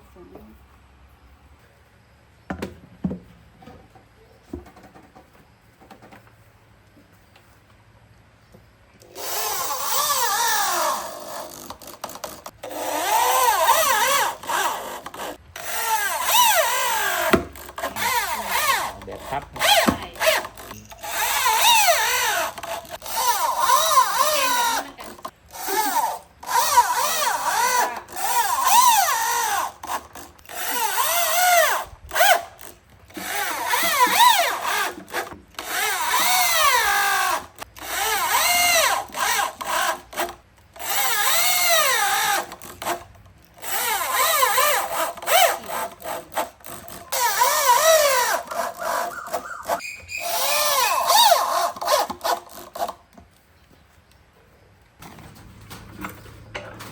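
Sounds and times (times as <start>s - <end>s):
power drill whining in bursts: 9.0s - 53.0s.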